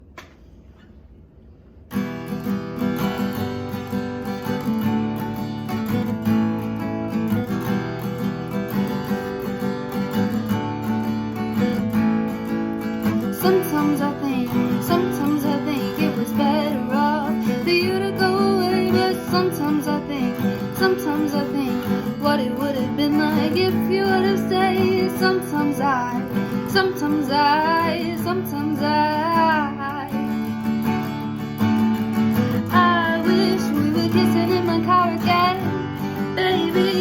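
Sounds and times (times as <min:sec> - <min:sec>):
acoustic guitar playing: 0:01.9 - 0:37.0
woman singing: 0:13.0 - 0:30.7, 0:32.2 - 0:37.0.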